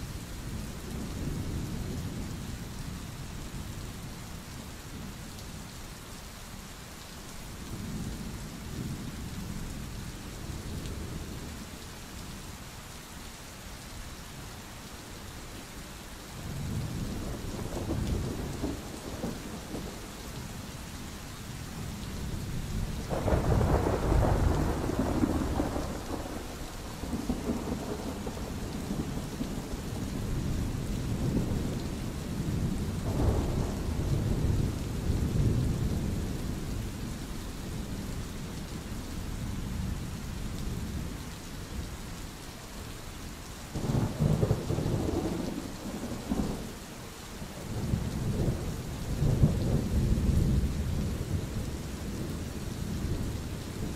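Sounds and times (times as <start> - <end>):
steady rain: 0.0 - 53.9
rolling thunder: 23.1 - 36.3, 47.6 - 52.3.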